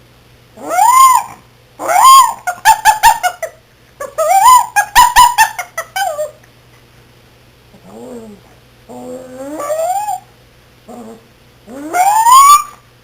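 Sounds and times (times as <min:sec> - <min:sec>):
puppy squeaking and squealing: 0:00.6 - 0:06.4, 0:09.0 - 0:10.3, 0:11.0 - 0:12.8
puppy moaning: 0:07.7 - 0:10.3, 0:10.9 - 0:12.8.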